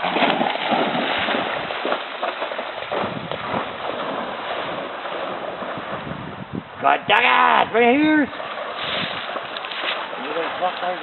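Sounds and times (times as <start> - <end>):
wind noise on microphone: 0.0 - 2.0, 2.8 - 9.4
dog splashing through water: 0.0 - 6.2, 8.3 - 11.0.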